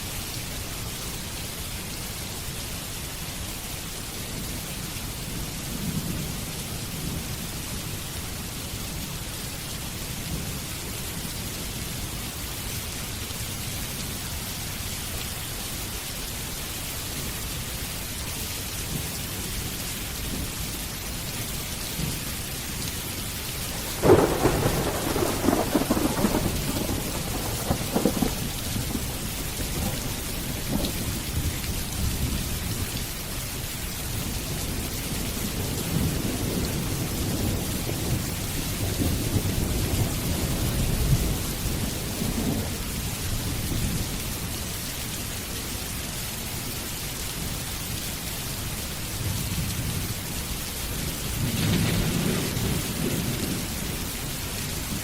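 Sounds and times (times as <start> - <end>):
steady rain falling: 0.0 - 55.0
thunder clap and rumble: 23.7 - 32.8, 35.2 - 42.8, 51.4 - 54.1.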